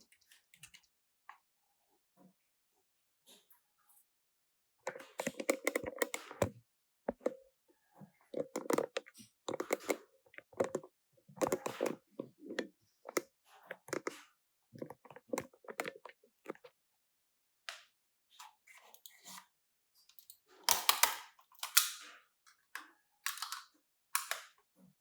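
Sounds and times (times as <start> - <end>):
clicking and tapping: 4.9 - 7.4, 8.4 - 14.2, 14.8 - 16.6.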